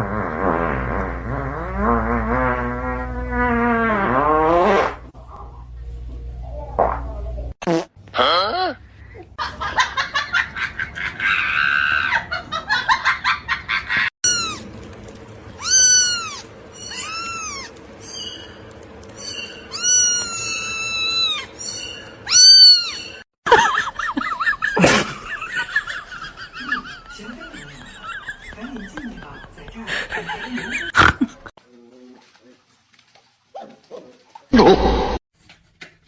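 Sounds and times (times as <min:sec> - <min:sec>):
cat meowing: 0:14.3 - 0:14.7, 0:15.6 - 0:17.8, 0:19.7 - 0:21.5, 0:22.3 - 0:23.1.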